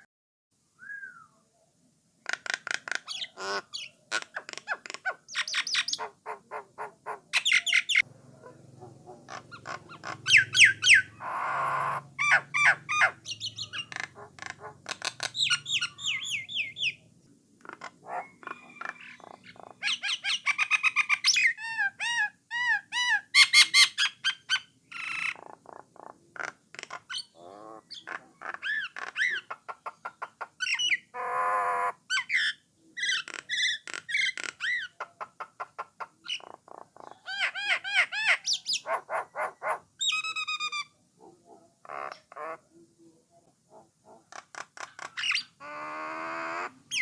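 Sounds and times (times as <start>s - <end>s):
myna singing whistles: 0.8s - 1.3s.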